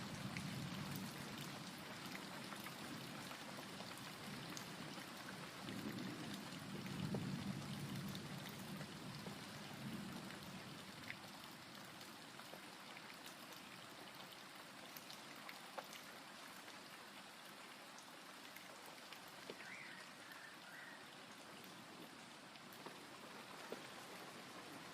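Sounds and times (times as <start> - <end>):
steady rain falling: 0.0 - 24.9
raindrops ticking: 18.4 - 20.4.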